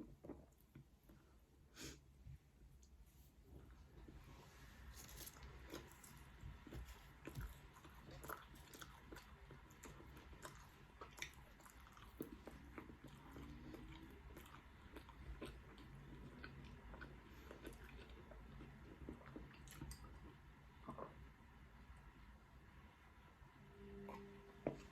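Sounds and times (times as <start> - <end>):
food crunching while chewed: 4.9 - 21.2.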